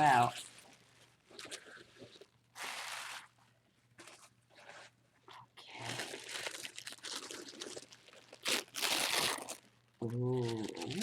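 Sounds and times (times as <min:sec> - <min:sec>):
packaging crinkling and tearing: 0:05.7 - 0:11.0.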